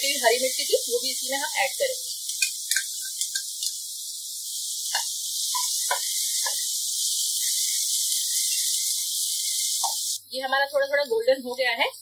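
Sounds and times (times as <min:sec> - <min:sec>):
onions sizzling in hot oil: 0:00.0 - 0:12.0
spatula scraping and knocking pan: 0:04.9 - 0:06.7.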